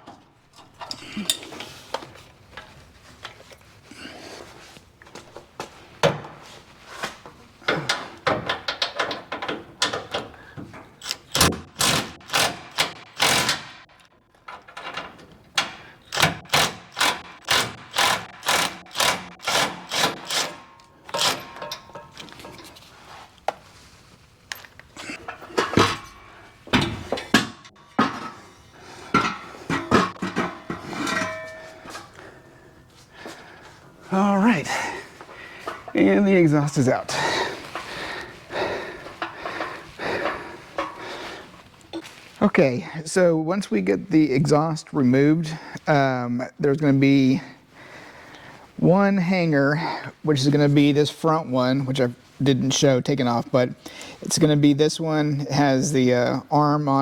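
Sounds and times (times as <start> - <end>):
metallic ringing: 30.5 - 32.3.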